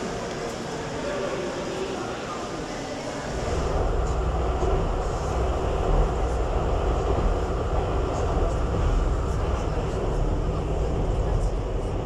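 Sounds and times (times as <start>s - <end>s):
train rumbling: 3.3s - 12.0s.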